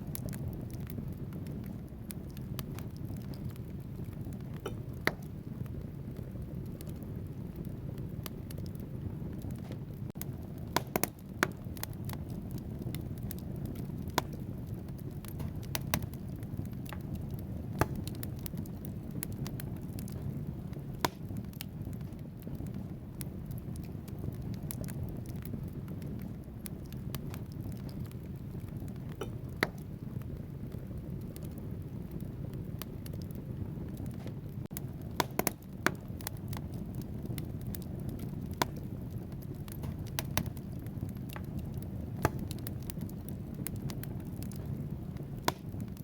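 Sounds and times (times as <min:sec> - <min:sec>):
fire rumbling: 0:00.0 - 0:46.0
logs crackling and popping: 0:00.0 - 0:46.0.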